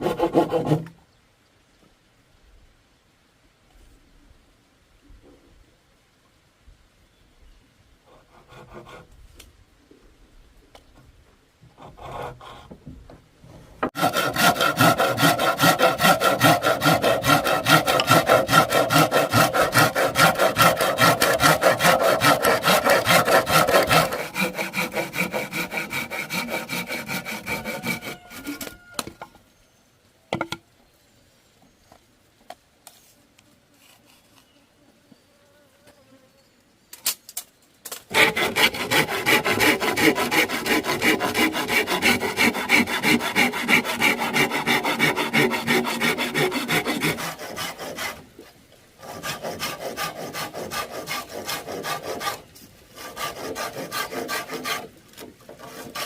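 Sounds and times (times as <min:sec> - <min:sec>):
hand saw cutting bamboo: 0:00.0 - 0:00.9, 0:08.3 - 0:09.1, 0:13.8 - 0:28.7, 0:38.1 - 0:48.3, 0:49.0 - 0:56.0.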